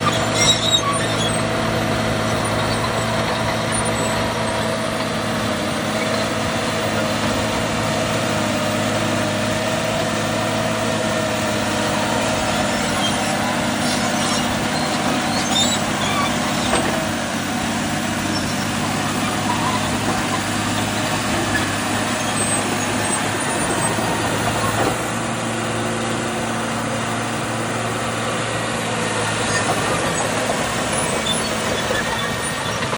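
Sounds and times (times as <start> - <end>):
high clicks and squeaks: 0.0 - 1.5, 12.6 - 17.3, 29.3 - 32.9
bulldozer diesel engine under load: 0.0 - 32.9.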